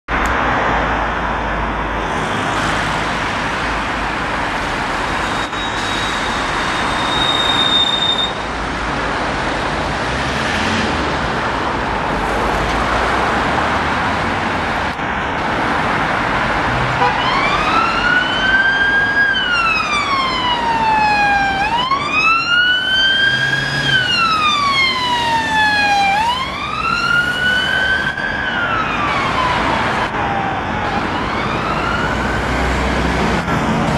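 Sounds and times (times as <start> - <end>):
road traffic noise: 0.1 - 33.9
police siren wailing: 17.0 - 33.3.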